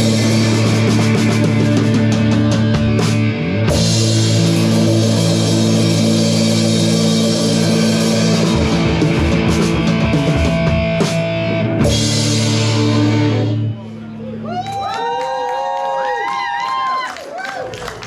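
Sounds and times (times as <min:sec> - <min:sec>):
punk rock band playing live: 0:00.0 - 0:13.7.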